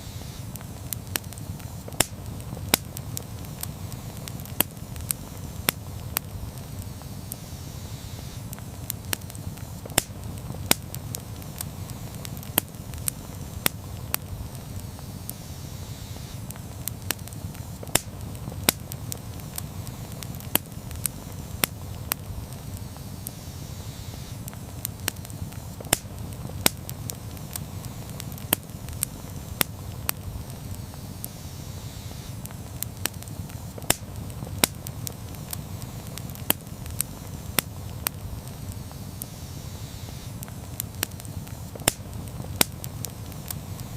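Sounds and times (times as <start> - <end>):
campfire crackling and popping: 0.0 - 43.9
low rumble of flames: 0.0 - 43.9.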